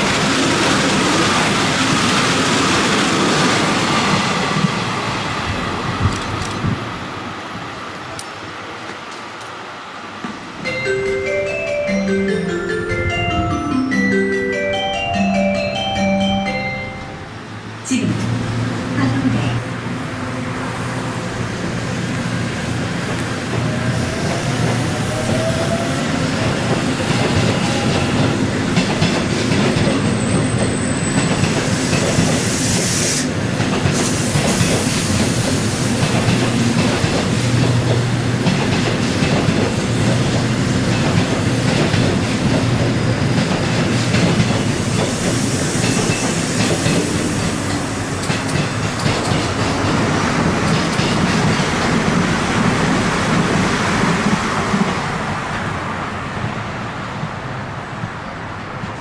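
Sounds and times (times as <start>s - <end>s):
train rolling rumble: 0.0s - 59.0s
wheels clacking over rail joints: 26.4s - 32.4s, 33.5s - 55.1s.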